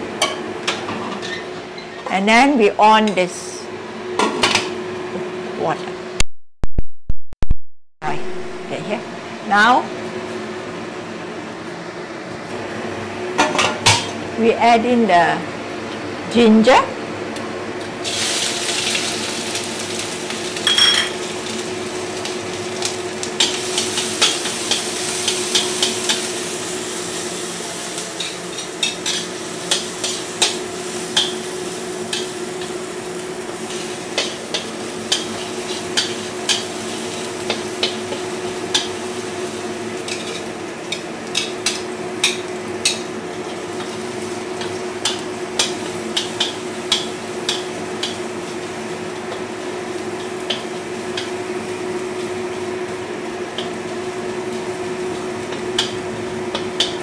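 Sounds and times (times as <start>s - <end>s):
ginger sizzling in hot oil: 17.9s - 57.0s.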